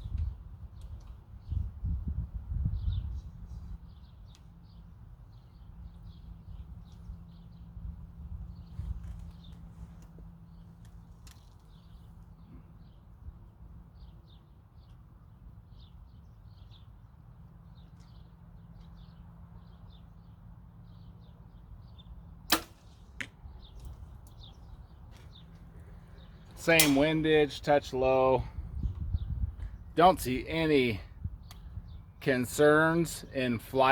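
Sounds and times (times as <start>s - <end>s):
birds chirping: 2.6s - 33.9s
arrow striking target: 22.5s - 23.4s, 26.8s - 27.2s
bow shot crack: 22.5s - 23.4s, 26.8s - 27.1s.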